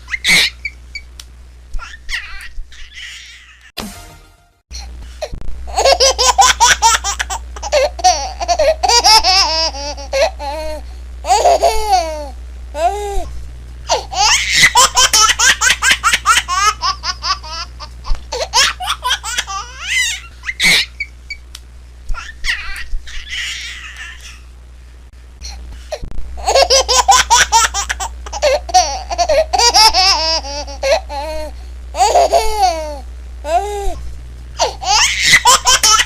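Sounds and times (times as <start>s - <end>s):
baby giggling: 5.7s - 12.9s, 26.4s - 33.8s, 34.6s - 36.0s.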